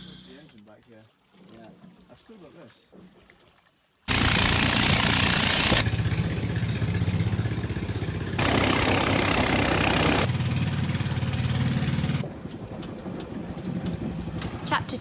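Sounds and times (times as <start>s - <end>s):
loud hiss: 4.1s - 5.9s, 8.4s - 10.3s
engine humming: 4.1s - 15.0s.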